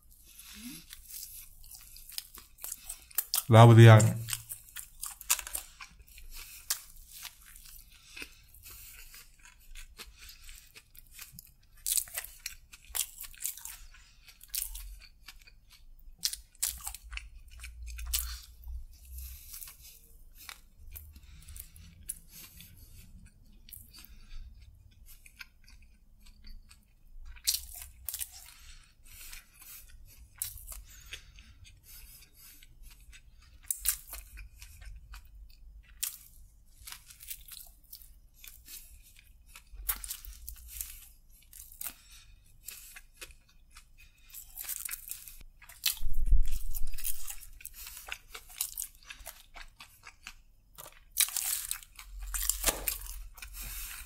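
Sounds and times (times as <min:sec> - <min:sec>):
chewing sandwich crunches: 0:00.1 - 0:54.0
wet mouth sounds: 0:45.7 - 0:51.3, 0:52.3 - 0:54.0.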